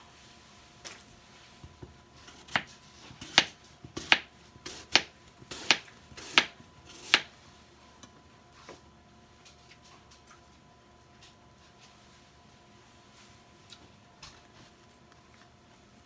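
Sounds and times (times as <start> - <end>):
knife chopping on cutting board: 2.3 - 7.3.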